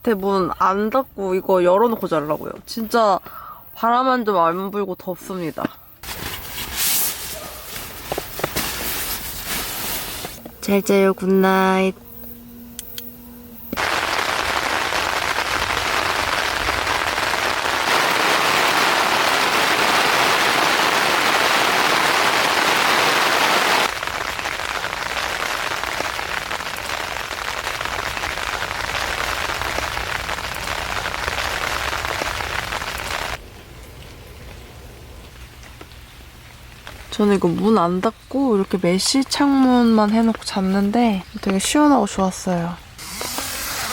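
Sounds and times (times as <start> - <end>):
heavy rain pouring: 13.8 - 37.2.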